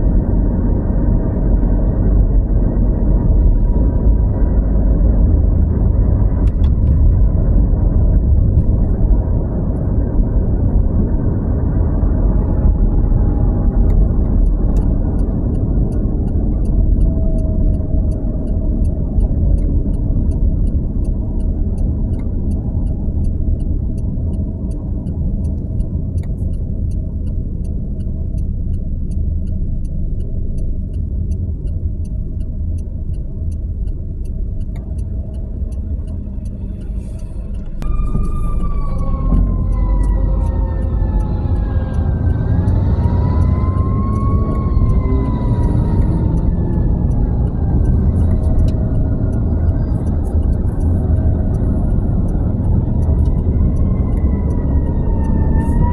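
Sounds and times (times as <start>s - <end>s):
vehicle road and engine rumble: 0.0s - 55.9s
faint regular ticking: 13.7s - 54.6s.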